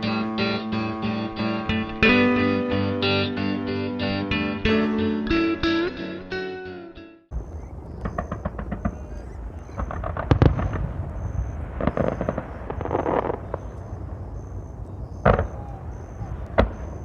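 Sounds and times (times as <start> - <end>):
fireworks crackling pops: 7.3 - 17.0
fireworks fizzing crackle: 7.3 - 17.0
fireworks sharp bangs: 7.3 - 17.0.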